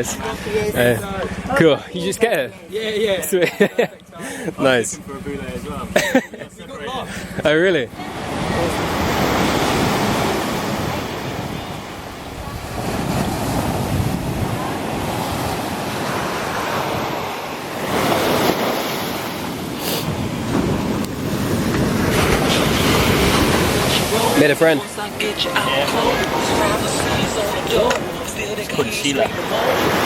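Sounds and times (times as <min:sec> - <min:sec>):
surf breaking on beach: 0:07.1 - 0:30.0
wind buffeting microphone: 0:08.0 - 0:24.4.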